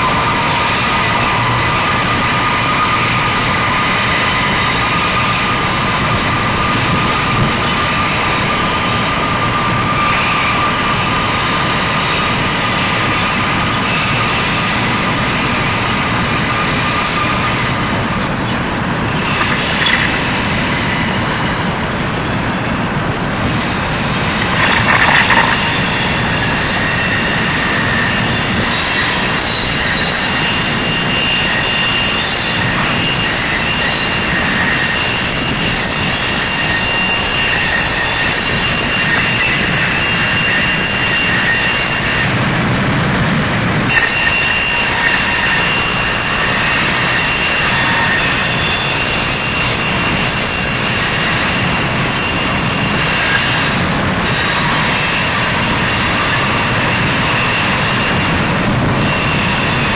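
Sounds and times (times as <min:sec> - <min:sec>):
high-pitched wheel squealing: 0:00.0 - 0:59.9
train wheels rumbling on rail: 0:00.0 - 0:59.9.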